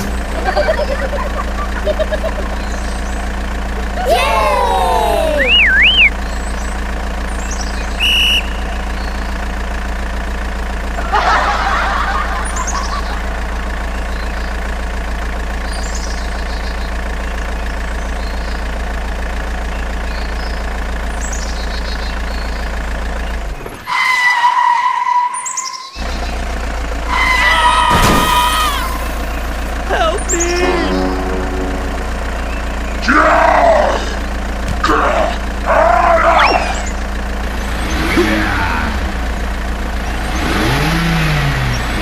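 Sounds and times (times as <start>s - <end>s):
engine-like drone: 0.0s - 42.0s
higher steady tone: 5.0s - 6.1s, 30.3s - 34.6s
short high beep: 5.4s - 6.1s.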